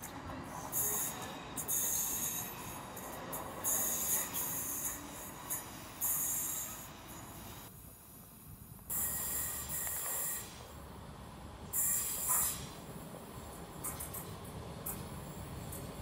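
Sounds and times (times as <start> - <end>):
wheels squealing on rail: 0.0 - 7.7, 8.9 - 10.6, 11.7 - 12.8
train approaching: 0.0 - 8.2, 8.9 - 16.0
train rumble: 0.0 - 16.0.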